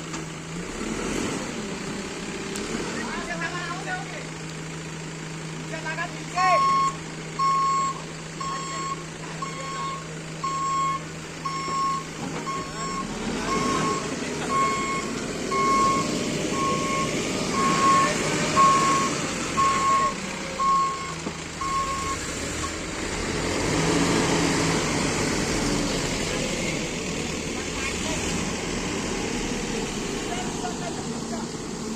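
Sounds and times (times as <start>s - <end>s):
diesel engine running: 0.0s - 31.9s
reversing alarm beeping: 6.6s - 22.8s.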